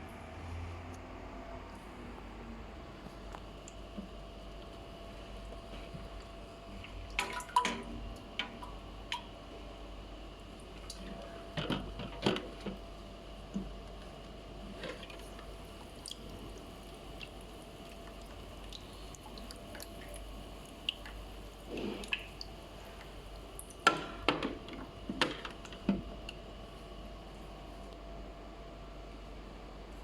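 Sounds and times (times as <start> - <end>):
faint steady hum: 0.0 - 30.0
water dripping and gurgling: 3.6 - 9.4, 14.7 - 23.9.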